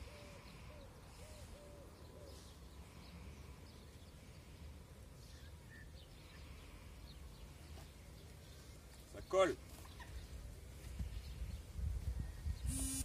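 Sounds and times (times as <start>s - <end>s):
distant birds calling: 0.0s - 11.5s.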